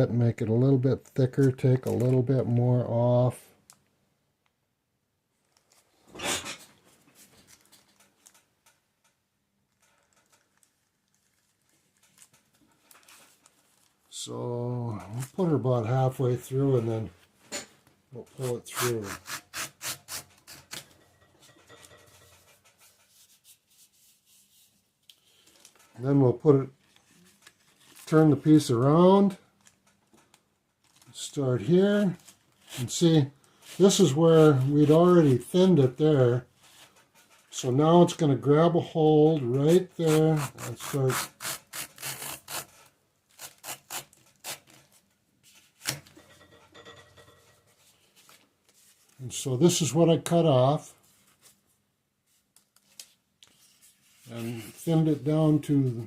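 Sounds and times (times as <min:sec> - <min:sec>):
leather rasping through blade: 0:18.7 - 0:20.8, 0:40.1 - 0:42.8, 0:43.4 - 0:44.7
faint rubbing: 0:21.8 - 0:28.4, 0:53.5 - 0:56.0.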